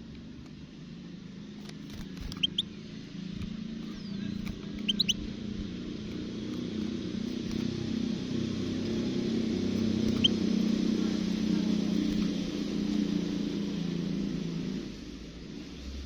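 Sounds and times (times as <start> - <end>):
steady low hum: 0.0 - 16.0
bird giving high chirps: 2.0 - 2.8, 3.8 - 5.4, 9.7 - 12.4.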